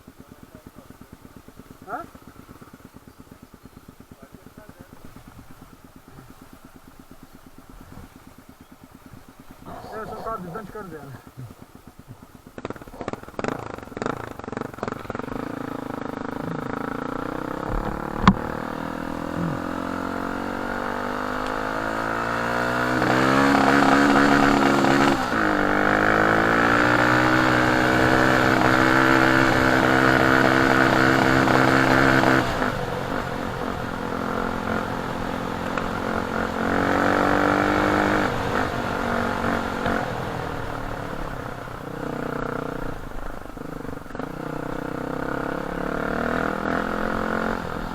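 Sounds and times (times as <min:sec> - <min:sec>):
motorcycle engine accelerating: 0:00.0 - 0:47.9
sharp knock: 0:17.7 - 0:18.6.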